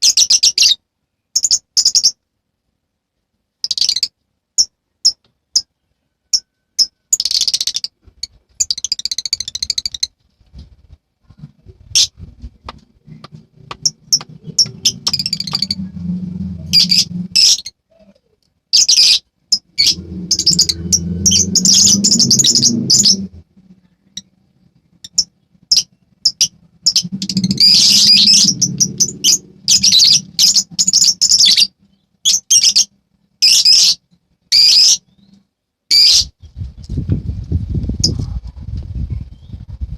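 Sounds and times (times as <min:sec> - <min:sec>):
lovebirds chirping shrilly: 0:13.8 - 0:17.8, 0:18.8 - 0:23.4, 0:25.0 - 0:36.4.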